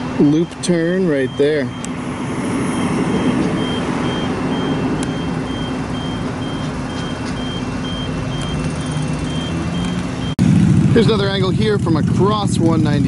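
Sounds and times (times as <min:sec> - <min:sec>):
low running engine: 0:00.0 - 0:13.0
passing traffic: 0:00.0 - 0:13.0
backup alarm beeping: 0:00.2 - 0:10.4.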